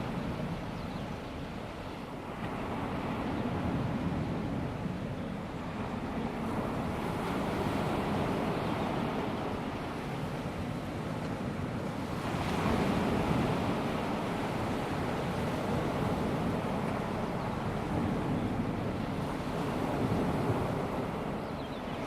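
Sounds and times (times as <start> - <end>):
small waves washing onto beach: 0.0 - 22.0
wind on microphone: 0.0 - 22.0.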